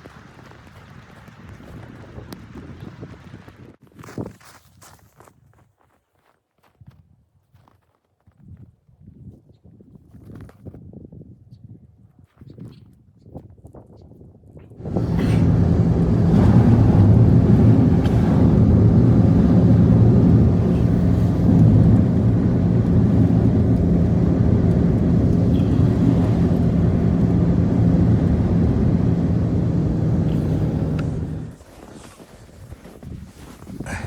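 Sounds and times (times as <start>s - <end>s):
low motor drone: 14.8s - 31.6s.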